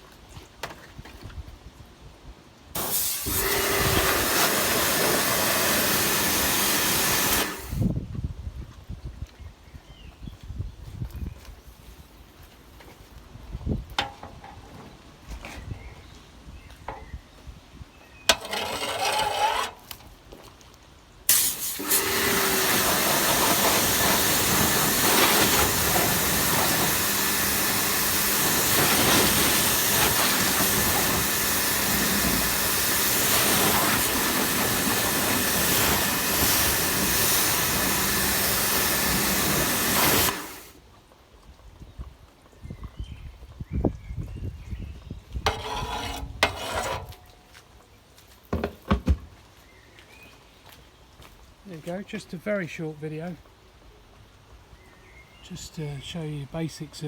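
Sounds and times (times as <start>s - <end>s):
water jet spraying: 2.8s - 7.8s, 21.3s - 40.7s.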